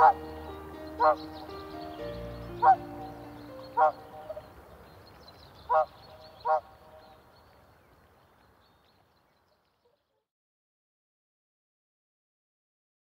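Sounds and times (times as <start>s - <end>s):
bird calls: 0.0s - 10.2s
faint outdoor background: 0.0s - 10.4s.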